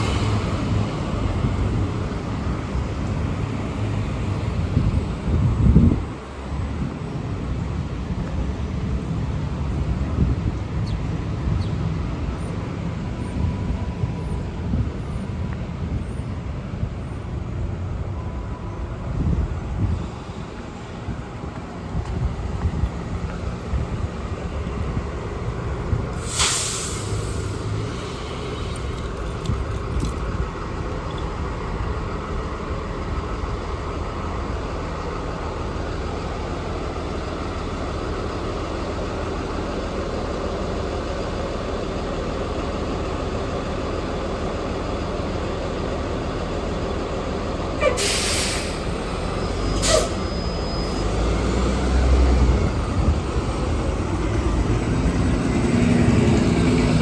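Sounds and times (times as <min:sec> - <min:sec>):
bus engine rumble: 0:00.0 - 0:57.0
traffic noise: 0:00.0 - 0:57.0
air brake hisses: 0:26.1 - 0:28.6, 0:47.8 - 0:51.2.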